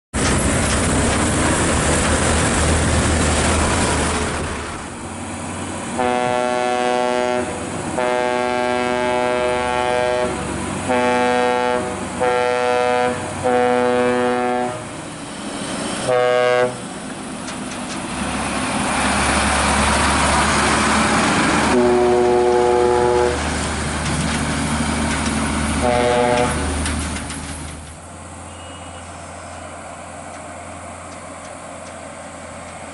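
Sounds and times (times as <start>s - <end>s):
engine and traffic rumble: 0.1s - 32.9s
air horn blasts: 6.0s - 14.9s, 16.0s - 16.8s, 21.7s - 23.4s, 25.8s - 26.6s.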